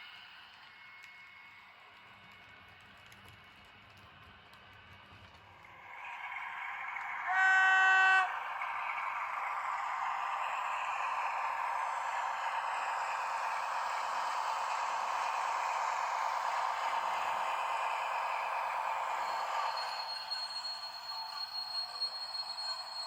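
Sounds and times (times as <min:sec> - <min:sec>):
diesel locomotive running: 0:00.0 - 0:23.0
locomotive horn: 0:07.1 - 0:08.4.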